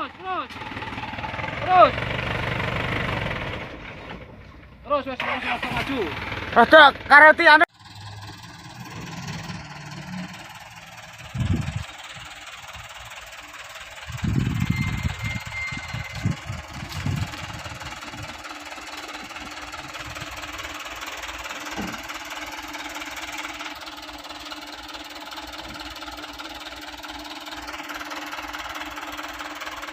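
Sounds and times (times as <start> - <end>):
diesel truck engine running: 0.0 - 29.9
high squeal: 14.1 - 17.5.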